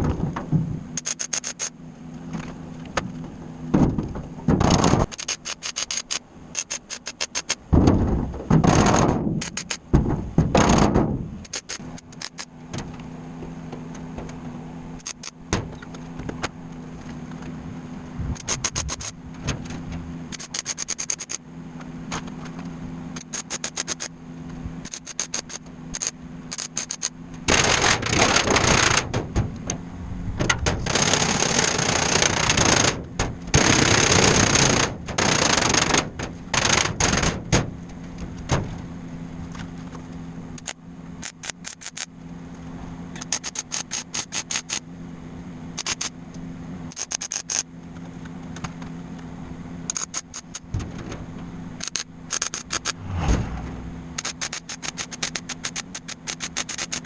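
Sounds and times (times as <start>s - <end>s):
steady low hum: 0.0s - 57.0s
sharp metallic clicks: 1.0s - 1.8s, 4.6s - 7.7s, 8.6s - 9.9s, 10.6s - 13.0s, 15.0s - 16.5s, 18.4s - 19.2s, 20.3s - 21.4s, 23.2s - 24.1s, 24.8s - 29.8s, 40.6s - 42.1s, 43.1s - 44.9s, 45.8s - 46.2s, 46.9s - 47.7s, 49.9s - 50.8s, 51.8s - 53.4s, 54.1s - 57.0s.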